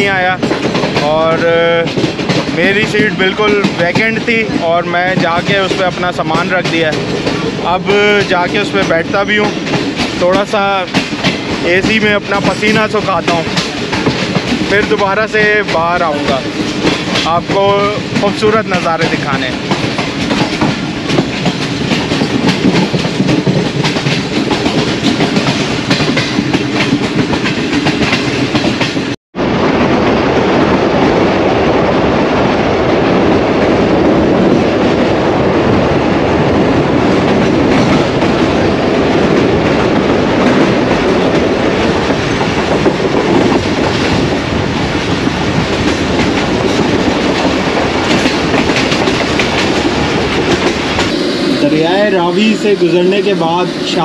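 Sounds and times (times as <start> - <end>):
train wheels rumbling: 0.0 - 54.0
wheels clattering over rail joints: 36.9 - 51.1.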